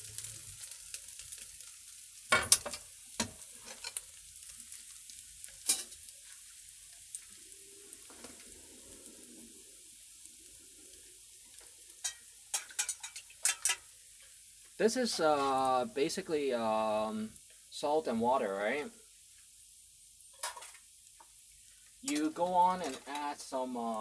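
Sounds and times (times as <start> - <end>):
food sizzling in a wok: 0.0 - 24.0
utensils clicking against pan: 2.4 - 4.1, 5.5 - 6.1, 12.0 - 13.9, 22.1 - 23.3.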